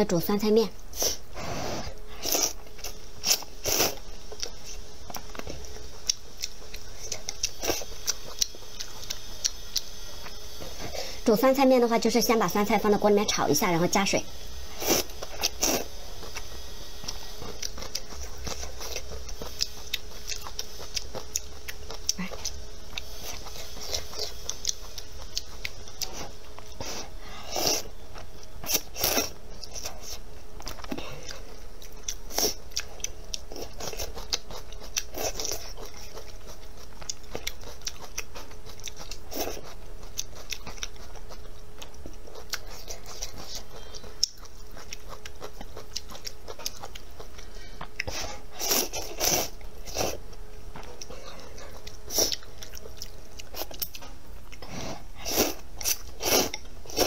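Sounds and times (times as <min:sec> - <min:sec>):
faint steady hum: 0:00.0 - 0:57.0
person chewing and crunching: 0:01.0 - 0:10.9, 0:14.8 - 0:57.0.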